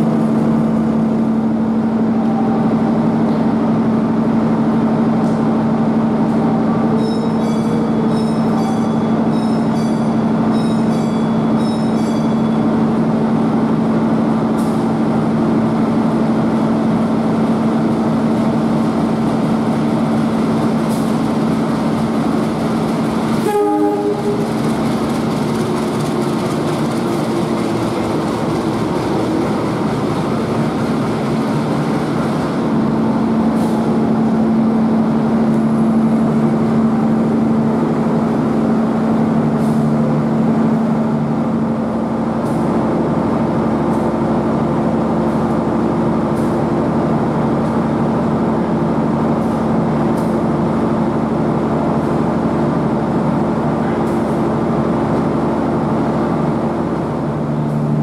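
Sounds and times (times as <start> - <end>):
train hum: 0.0 - 58.0
train horn blast: 23.4 - 24.5.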